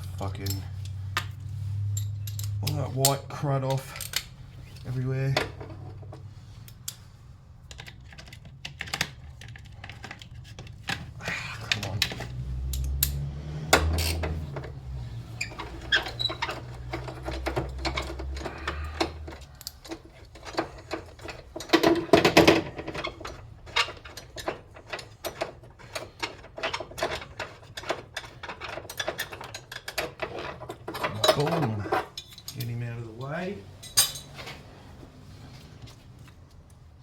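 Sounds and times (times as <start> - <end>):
hand tools clicking on metal: 7.7 - 14.8, 15.4 - 32.8
metal clatter: 7.7 - 32.8, 33.8 - 34.6.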